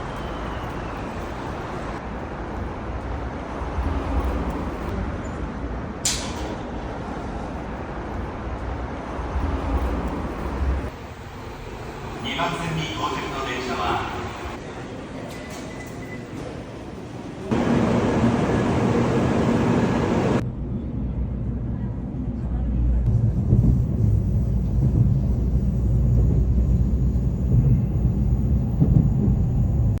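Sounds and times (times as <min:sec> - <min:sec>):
train rumbling: 0:00.0 - 0:30.0
low vehicle rumble: 0:17.5 - 0:30.0.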